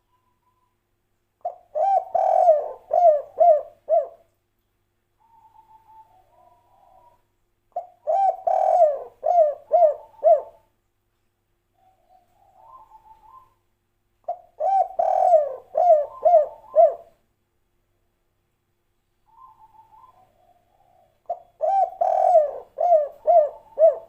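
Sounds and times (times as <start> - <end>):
dove cooing: 1.4 - 4.3, 5.2 - 7.2, 7.8 - 10.7, 11.8 - 13.6, 14.3 - 17.2, 19.3 - 24.0.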